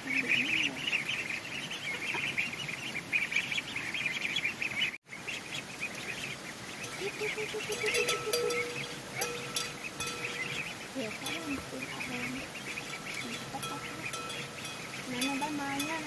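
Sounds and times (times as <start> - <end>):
ducklings peeping: 0.0 - 16.0
faint steady tone: 6.7 - 16.0.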